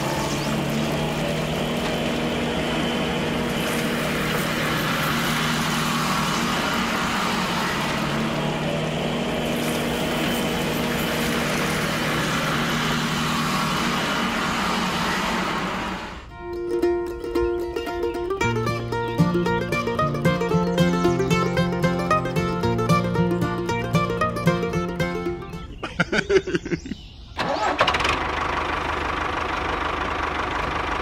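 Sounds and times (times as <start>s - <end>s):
motor drone with hiss: 0.0s - 16.3s.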